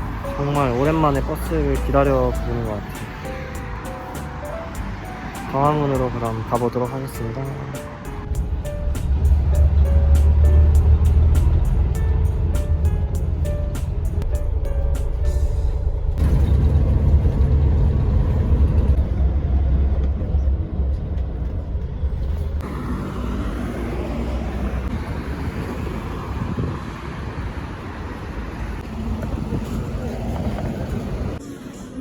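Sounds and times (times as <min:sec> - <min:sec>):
street traffic hiss: 0:00.0 - 0:16.1, 0:22.6 - 0:32.0
vehicle engine and road rumble: 0:00.0 - 0:31.5.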